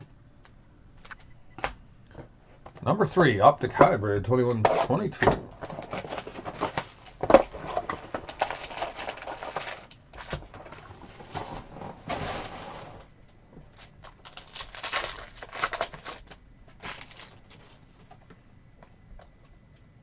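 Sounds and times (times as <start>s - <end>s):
foil wrapper tearing and crinkling: 5.6s - 12.6s, 13.7s - 17.7s.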